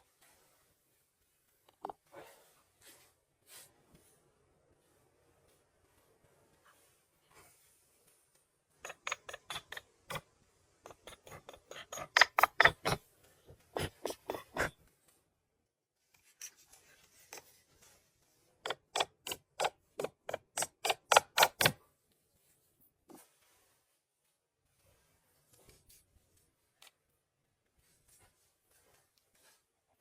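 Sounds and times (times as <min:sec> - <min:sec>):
rapid sharp knocks: 0:08.9 - 0:10.2, 0:10.9 - 0:13.0, 0:18.7 - 0:21.8.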